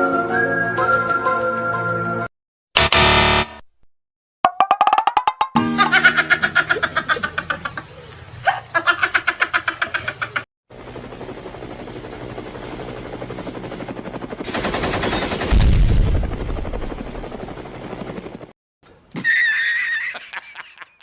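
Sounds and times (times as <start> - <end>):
rapid rattling shots: 14.4 - 16.2
loud booming burst: 14.5 - 16.4.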